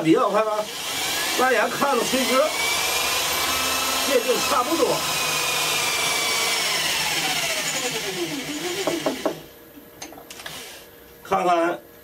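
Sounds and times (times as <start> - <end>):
electric drill boring into wood: 0.5 - 9.5, 10.3 - 10.9.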